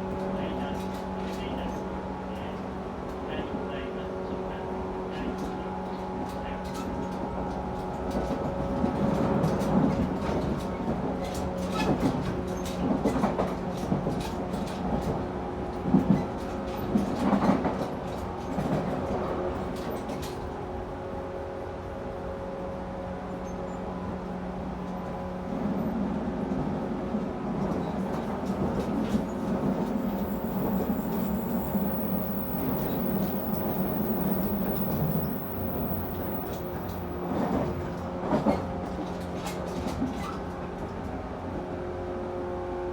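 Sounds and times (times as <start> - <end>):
train motor hum: 28.1 - 38.0
wheels clicking over rail joints: 28.2 - 38.0.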